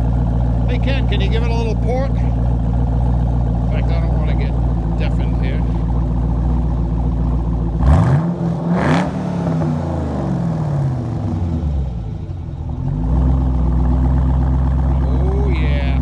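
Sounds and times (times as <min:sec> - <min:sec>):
car engine idling with choppy lope: 0:00.0 - 0:16.0
engine revving: 0:03.6 - 0:06.1, 0:07.7 - 0:12.0, 0:12.8 - 0:16.0.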